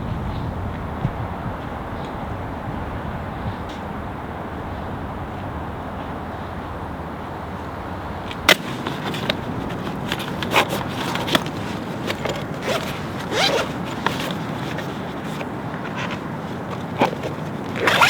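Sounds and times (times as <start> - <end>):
objects being handled: 8.3 - 18.0.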